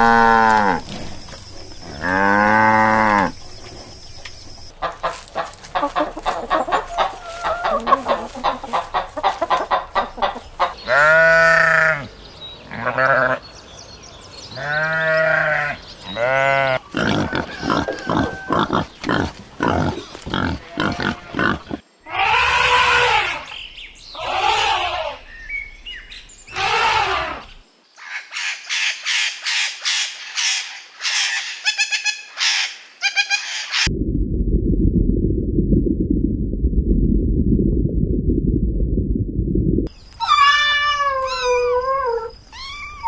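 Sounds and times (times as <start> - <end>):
sheep bleating: 10.8 - 12.1, 14.6 - 18.7, 20.4 - 23.2
high squawking bird calls: 39.9 - 43.0.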